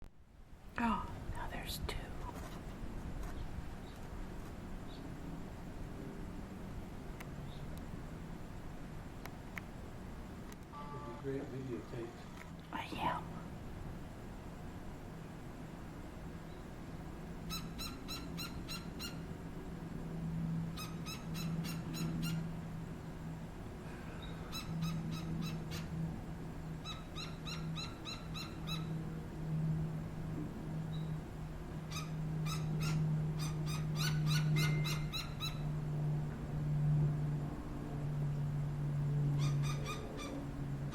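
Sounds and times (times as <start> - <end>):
low steady hum: 0.0 - 40.9
woodpeckers calling: 17.5 - 19.3, 20.7 - 22.5, 24.2 - 25.9, 26.8 - 29.0, 31.9 - 35.6, 39.4 - 40.4.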